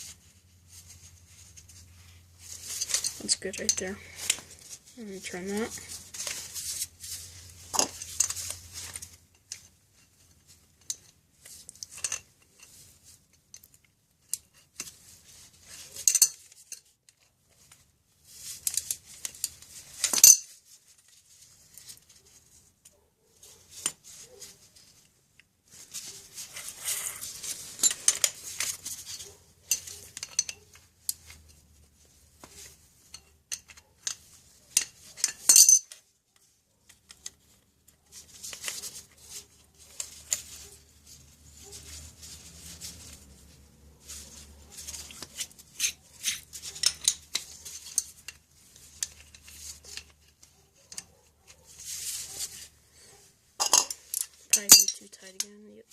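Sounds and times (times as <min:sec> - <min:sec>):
wrench and metal parts clinking: 0:11.9 - 0:12.8, 0:15.7 - 0:16.9, 0:18.6 - 0:20.6, 0:27.5 - 0:31.6, 0:33.0 - 0:36.0, 0:44.9 - 0:50.2, 0:53.6 - 0:55.5.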